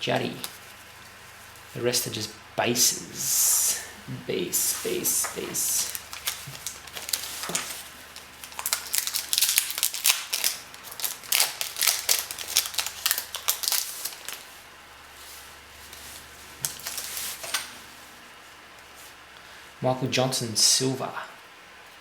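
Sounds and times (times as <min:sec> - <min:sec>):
plastic wrapper crinkling and tearing: 0:00.0 - 0:01.8, 0:04.6 - 0:17.6
cards being handled: 0:04.5 - 0:14.6, 0:15.3 - 0:17.9.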